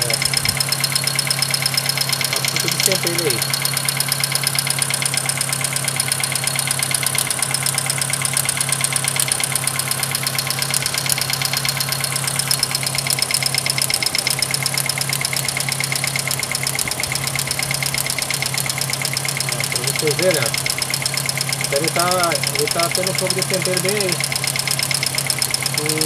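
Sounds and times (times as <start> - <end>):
man talking: 0.0 - 0.3, 2.3 - 3.4, 19.4 - 20.6, 21.7 - 24.2, 25.8 - 26.0
car engine idling: 0.0 - 26.0
rapid engine lifter tapping: 0.0 - 26.0.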